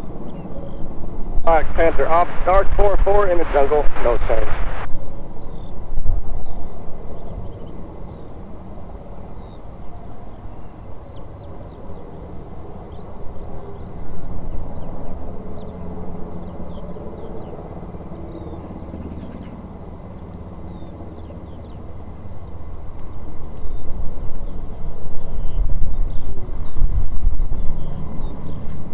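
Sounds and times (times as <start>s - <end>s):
distant jet engine rumble: 0.0s - 28.9s
small birds chirping: 10.3s - 28.9s.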